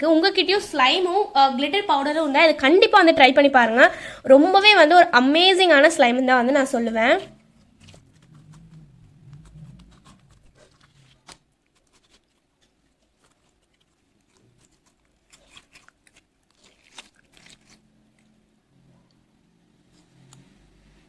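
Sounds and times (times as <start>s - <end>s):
slime squeezed by hand: 7.4s - 17.9s.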